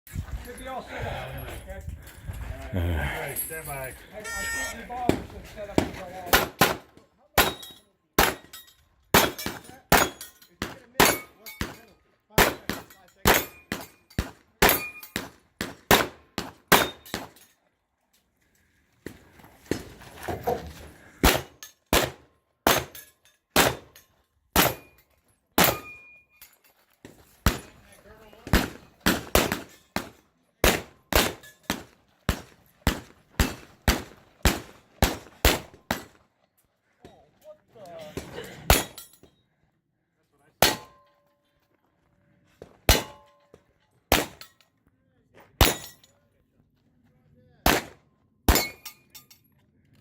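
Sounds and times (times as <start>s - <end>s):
short ringing tone: 4.2s - 4.8s
pistol shots: 6.3s - 7.6s, 8.2s - 8.5s, 12.4s - 17.3s, 21.2s - 23.0s, 23.6s - 24.0s, 28.5s - 36.1s, 42.9s - 43.2s, 44.1s - 44.4s, 47.6s - 48.8s.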